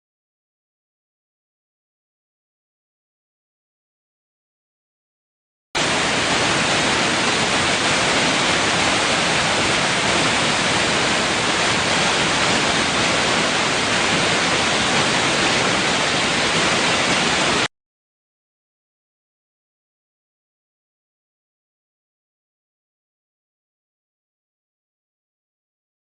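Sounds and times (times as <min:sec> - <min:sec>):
steady rushing hiss: 0:05.8 - 0:17.7.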